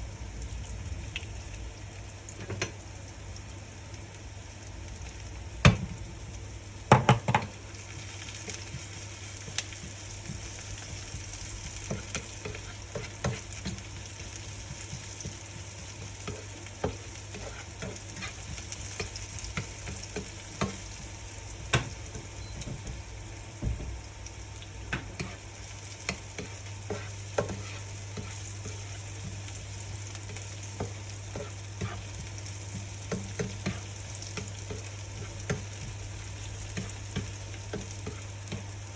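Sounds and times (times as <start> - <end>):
food sizzling in a pan: 0.0 - 38.9
utensil knocking and scraping pan: 26.4 - 29.4.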